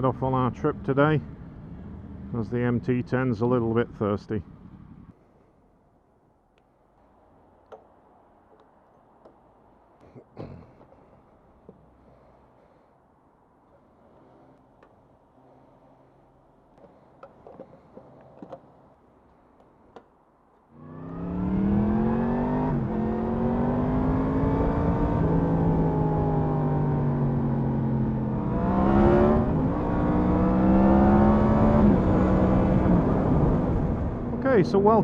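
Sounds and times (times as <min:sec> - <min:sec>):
motorcycle engine accelerating: 0:00.4 - 0:05.1, 0:20.8 - 0:35.0.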